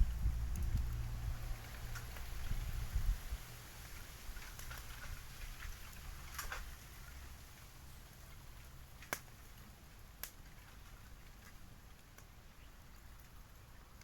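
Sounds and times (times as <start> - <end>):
bonfire crackling: 0.0 - 14.0.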